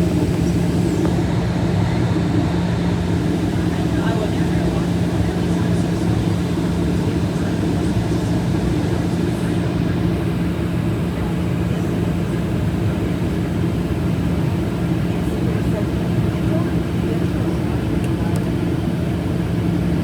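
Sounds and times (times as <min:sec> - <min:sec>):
airplane engine drone: 0:00.0 - 0:20.0.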